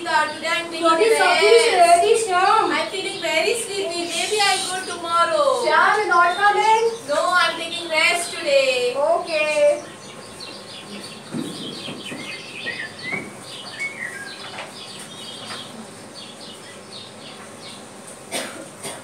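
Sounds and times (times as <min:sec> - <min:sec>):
birds chirping: 0:00.0 - 0:19.0
dull knocks: 0:11.3 - 0:13.4.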